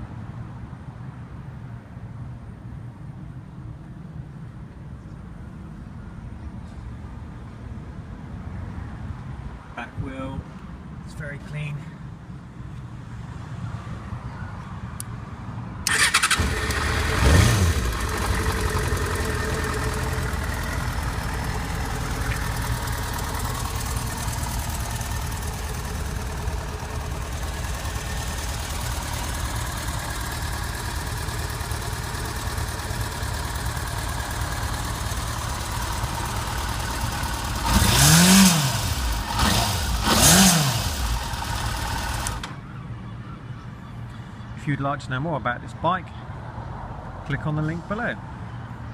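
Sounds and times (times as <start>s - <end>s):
motorcycle engine starting and idling: 15.8s - 42.8s.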